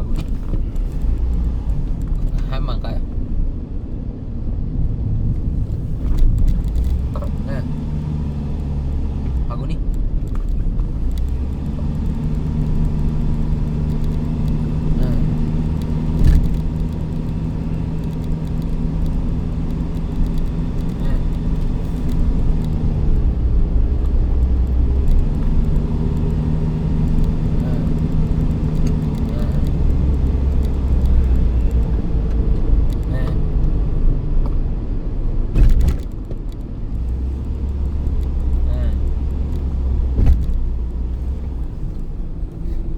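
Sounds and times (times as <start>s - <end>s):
road vehicle hum: 0.0s - 42.9s
vehicle bump: 5.4s - 23.3s, 35.5s - 42.9s.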